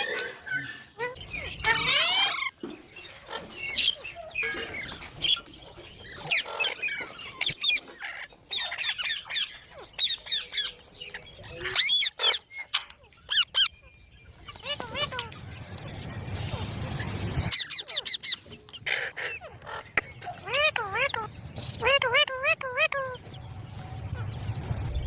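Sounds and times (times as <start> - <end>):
parrot squawking and chattering: 0.0 - 13.8, 14.4 - 23.2.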